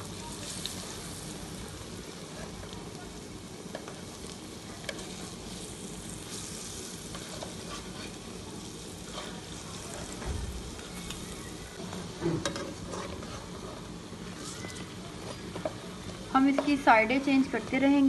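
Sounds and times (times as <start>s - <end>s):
patties sizzling in oil: 0.0s - 18.0s
metal spatula scraping and tapping: 7.1s - 8.2s, 11.8s - 13.8s, 16.5s - 16.9s.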